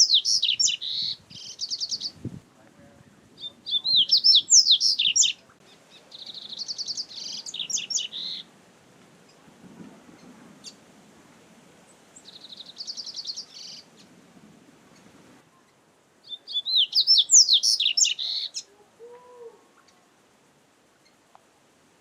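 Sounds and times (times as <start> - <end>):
bird twittering song: 0.0 - 2.3, 3.4 - 8.5, 12.2 - 14.2, 14.9 - 18.7.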